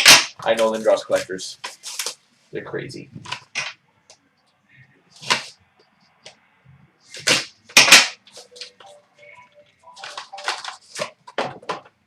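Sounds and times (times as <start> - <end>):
cards and packaging swishing: 10.0 - 11.2.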